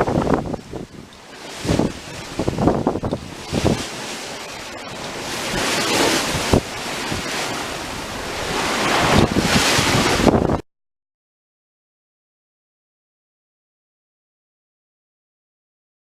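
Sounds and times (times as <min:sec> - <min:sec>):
sea water rushing past hull: 0:00.0 - 0:10.6
wind buffeting microphone: 0:00.0 - 0:10.6.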